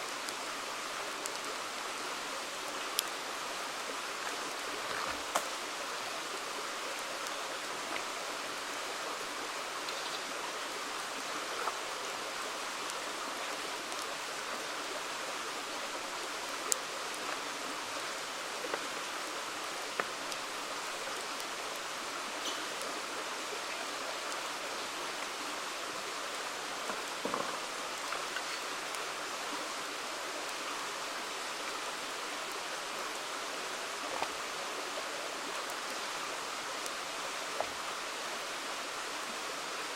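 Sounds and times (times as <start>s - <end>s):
river flowing: 0.0s - 39.9s
campfire crackling and popping: 0.2s - 1.6s, 2.7s - 8.7s, 15.8s - 22.9s.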